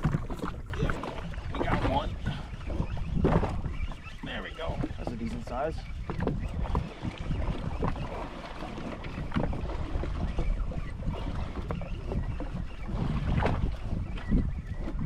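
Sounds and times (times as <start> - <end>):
short splashes and knocks: 0.0 - 3.6
water slapping against hull: 0.0 - 15.0
wind buffeting microphone: 0.0 - 15.0.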